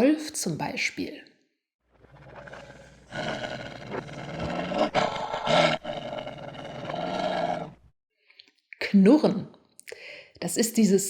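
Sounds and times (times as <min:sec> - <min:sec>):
dog growling: 0:02.0 - 0:07.9.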